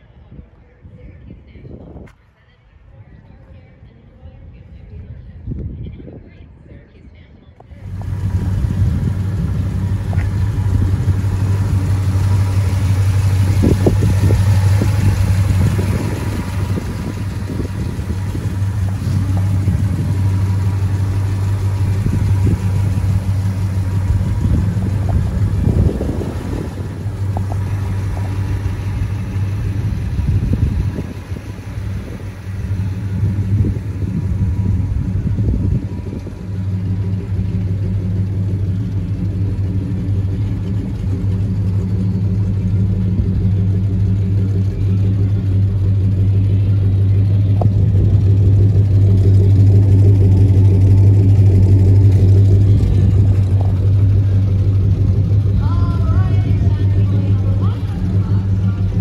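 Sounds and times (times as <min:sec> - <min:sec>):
car engine idling: 0:07.6 - 0:59.0.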